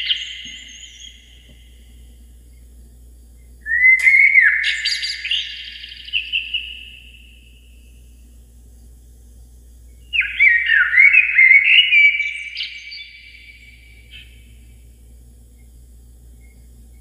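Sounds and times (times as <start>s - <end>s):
bird call with echo: 0.0s - 1.6s, 3.6s - 8.1s, 10.1s - 14.6s.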